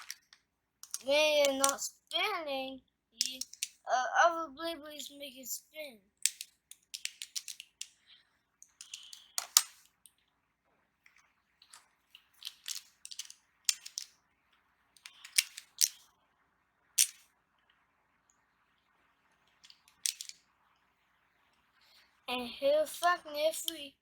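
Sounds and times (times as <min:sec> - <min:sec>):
plastic toy parts clicking: 0:00.0 - 0:02.2, 0:03.2 - 0:03.9, 0:06.2 - 0:08.0, 0:08.6 - 0:10.0, 0:11.6 - 0:14.2, 0:15.0 - 0:16.1, 0:17.0 - 0:17.2, 0:19.6 - 0:20.4.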